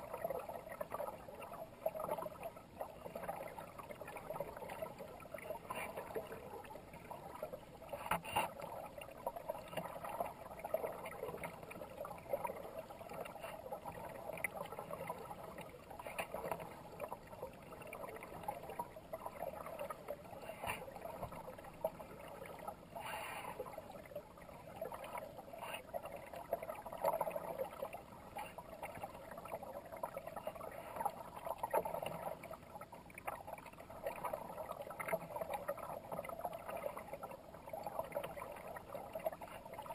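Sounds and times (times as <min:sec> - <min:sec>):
water trickling and gurgling: 0:00.0 - 0:39.9
kayak paddle splashing: 0:03.0 - 0:33.5.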